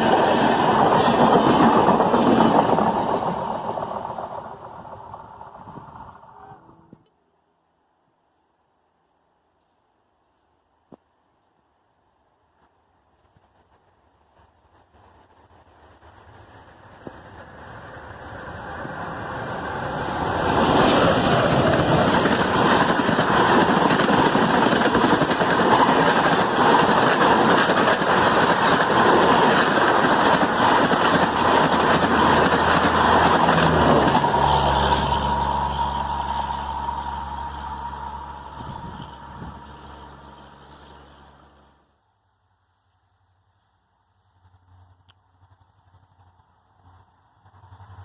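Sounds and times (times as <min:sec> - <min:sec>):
train coaches clattering on track: 0:00.0 - 0:07.0, 0:14.3 - 0:41.2
low diesel engine hum: 0:31.3 - 0:41.9.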